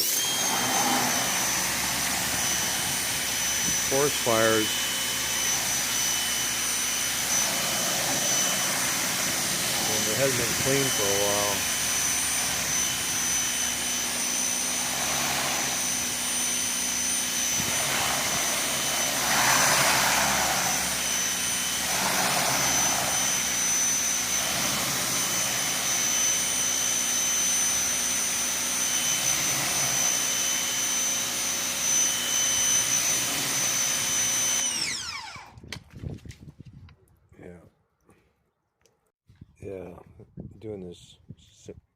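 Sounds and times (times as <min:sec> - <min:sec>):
jet spray hissing: 0:00.0 - 0:16.4, 0:17.4 - 0:23.8
pressure washer motor whine: 0:00.0 - 0:35.8.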